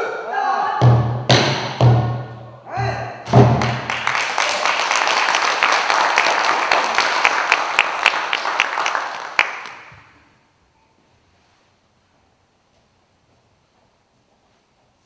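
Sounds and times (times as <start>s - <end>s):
audience applauding: 3.6s - 10.2s.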